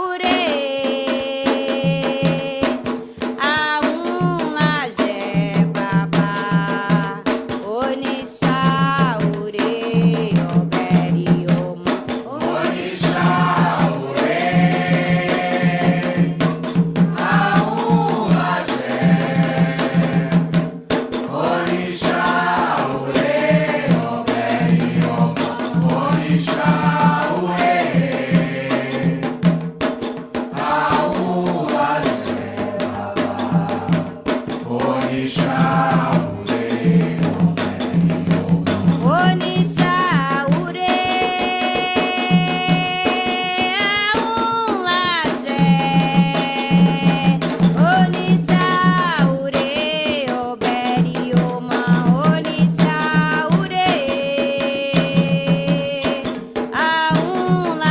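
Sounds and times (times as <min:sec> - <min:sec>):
voices singing a chant: 0:00.0 - 0:29.5, 0:30.5 - 0:57.9
steady drum beat: 0:00.0 - 0:57.9
voices chanting: 0:12.4 - 0:16.5, 0:17.1 - 0:20.5, 0:21.3 - 0:29.2, 0:30.6 - 0:34.0, 0:34.6 - 0:38.9.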